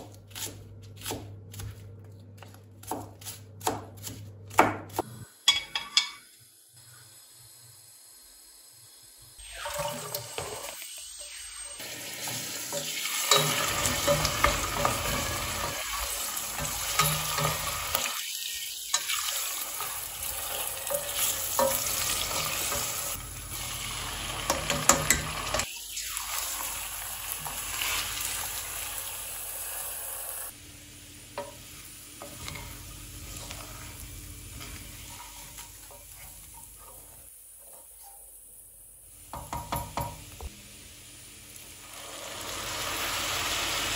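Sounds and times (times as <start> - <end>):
food sizzling in a frying pan: 5.1 - 43.9
utensil scraping a pan: 32.2 - 38.3.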